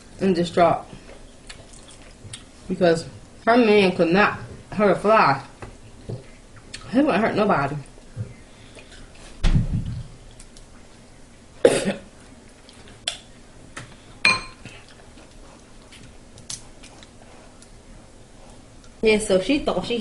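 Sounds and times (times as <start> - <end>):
dishes and cutlery clinking: 14.3 - 14.7.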